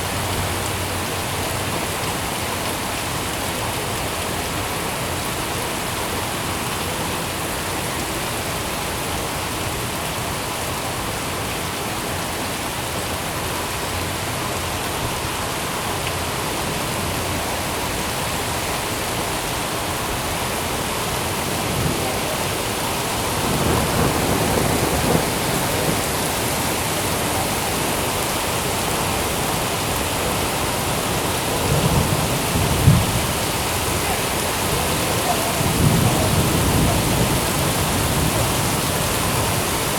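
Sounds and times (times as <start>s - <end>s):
steady rain falling: 0.0s - 39.9s
thunder rumbling: 21.1s - 27.5s, 31.5s - 39.8s.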